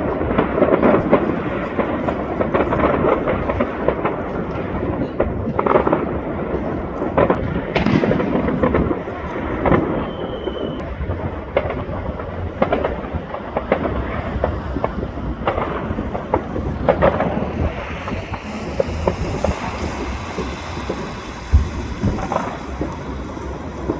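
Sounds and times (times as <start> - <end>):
continuous low rumble: 0.0 - 23.9
fireworks bangs and crackles: 0.0 - 23.9
high whistle: 9.8 - 10.9.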